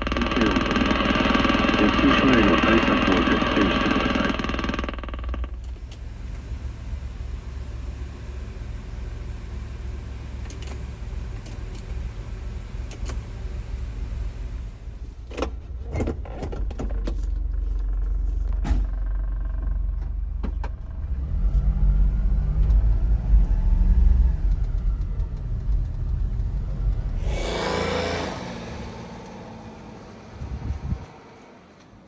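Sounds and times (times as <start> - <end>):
small truck engine rumbling: 0.0 - 32.0.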